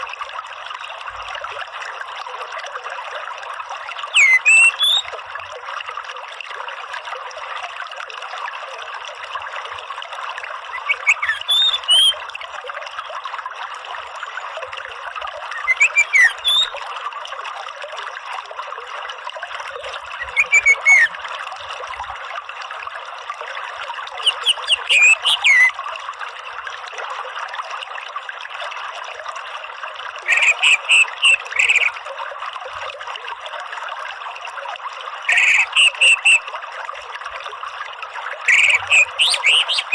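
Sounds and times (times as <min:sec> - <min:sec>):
trickling water: 0:00.0 - 0:39.9
thrush chirping: 0:30.3 - 0:31.9, 0:38.5 - 0:39.9.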